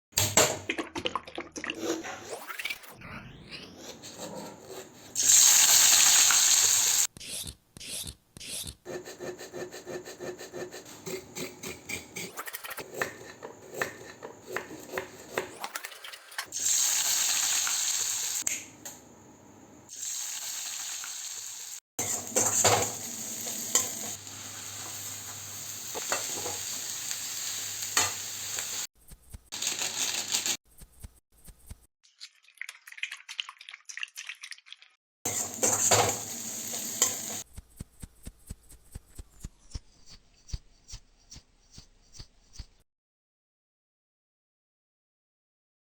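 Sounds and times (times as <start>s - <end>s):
utensil scraping a pan: 3.8s - 5.4s, 8.9s - 16.5s
oil sizzling in a pan: 5.2s - 7.1s, 16.5s - 18.5s, 19.9s - 28.9s, 29.6s - 30.6s, 35.3s - 37.4s.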